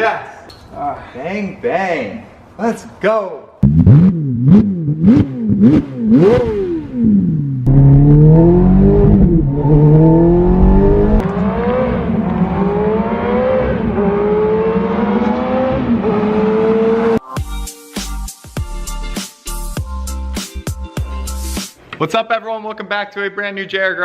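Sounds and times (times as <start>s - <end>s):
sports car engine revving: 3.6s - 17.2s.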